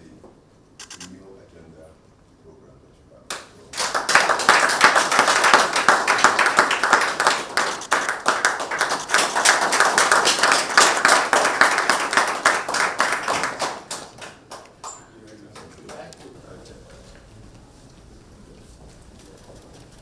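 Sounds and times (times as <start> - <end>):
audience applauding: 3.3 - 16.5.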